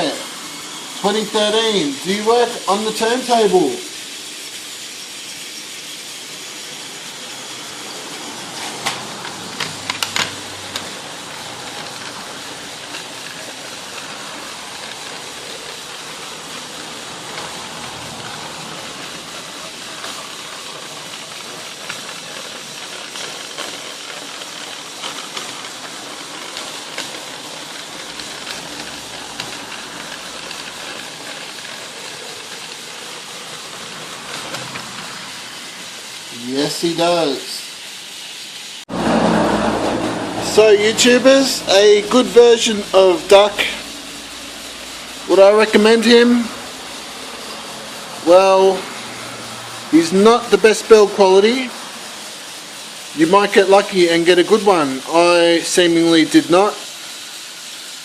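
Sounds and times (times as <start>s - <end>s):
toy locomotive motor whirring: 0.0s - 58.0s
toy train clicks and clatters: 0.0s - 58.0s.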